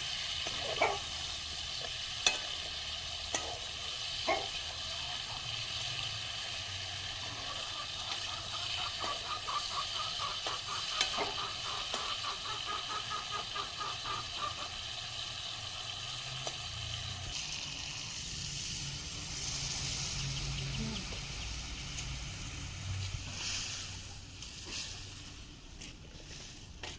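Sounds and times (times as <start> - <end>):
curry sizzling in a pan: 0.0 - 25.6.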